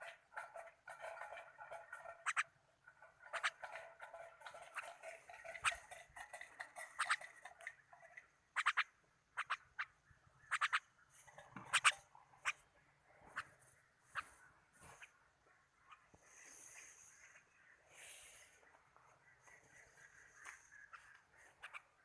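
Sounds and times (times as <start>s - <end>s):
bird chirps and clicks: 0.4s - 2.6s, 3.2s - 16.2s, 18.4s - 22.0s
pet bird warbling: 2.2s - 2.5s, 3.3s - 3.6s, 8.6s - 10.9s, 11.6s - 12.6s, 20.7s - 22.0s.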